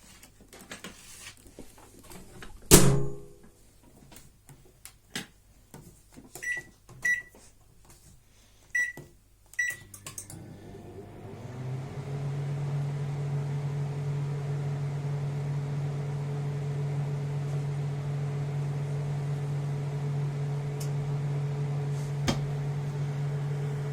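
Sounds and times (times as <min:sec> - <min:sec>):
microwave oven humming: 0:09.6 - 0:23.9.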